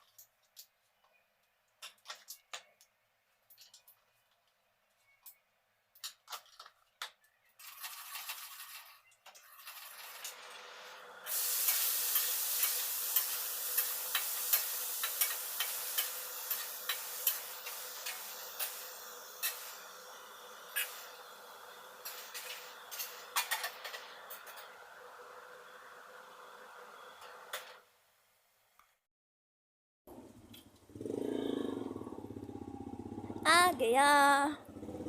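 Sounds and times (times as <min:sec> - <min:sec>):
vegetables sizzling in hot oil: 0:11.3 - 0:26.6.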